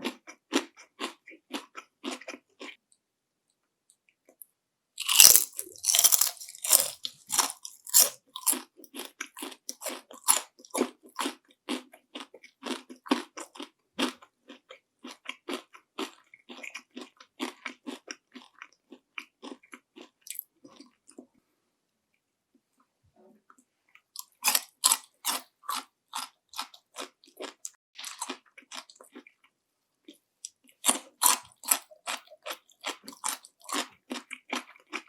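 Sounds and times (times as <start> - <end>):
crunchy chewing: 0.0 - 2.8, 5.0 - 21.3, 24.2 - 35.0
crispy food bite: 5.0 - 14.2, 24.2 - 29.4.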